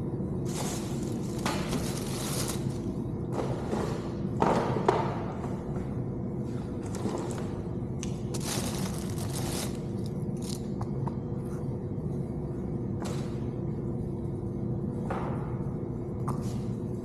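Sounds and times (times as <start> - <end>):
steady low hum: 0.0 - 17.0
crinkling and scraping of parts: 0.5 - 4.1, 8.3 - 10.8.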